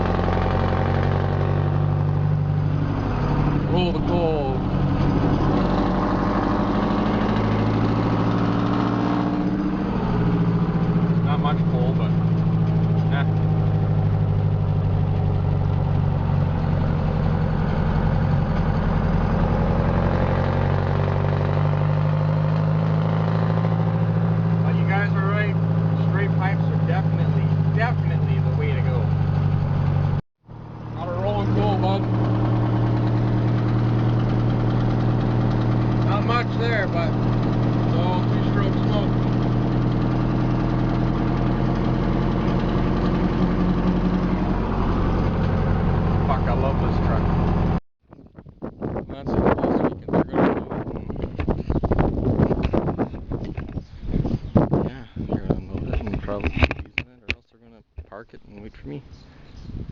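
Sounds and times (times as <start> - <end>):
diesel truck engine running: 0.0 - 47.8.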